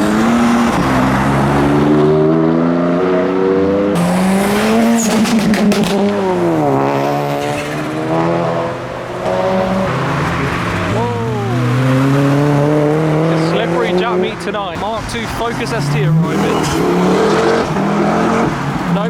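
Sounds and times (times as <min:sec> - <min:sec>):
car engine accelerating: 0:00.0 - 0:19.0
sharp exhaust crackles: 0:09.3 - 0:19.0.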